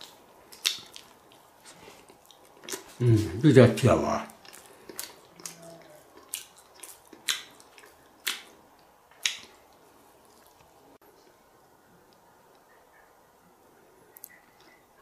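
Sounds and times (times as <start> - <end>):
man chewing with wet smacks: 0.0 - 3.3, 4.3 - 10.8.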